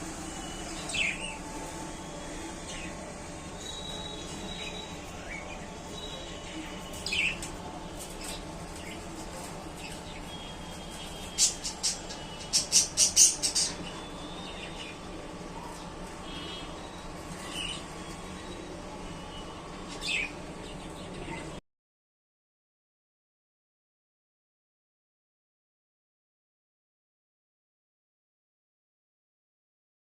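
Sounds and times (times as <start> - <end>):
low background hum: 0.0 - 21.6
budgerigars chirping: 11.4 - 14.9.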